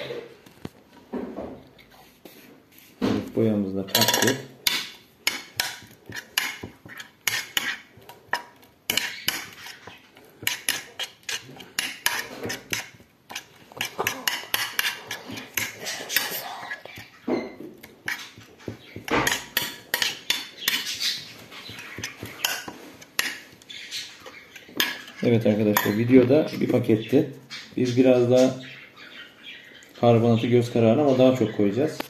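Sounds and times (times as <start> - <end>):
spoon scraping a bowl: 3.9 - 28.5.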